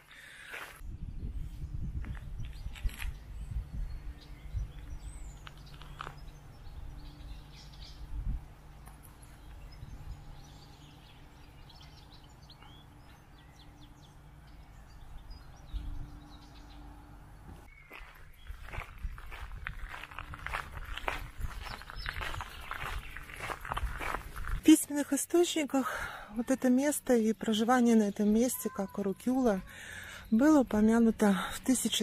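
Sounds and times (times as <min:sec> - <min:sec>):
songbirds chirping: 0:00.0 - 0:32.0
low steady rumble: 0:00.9 - 0:17.7.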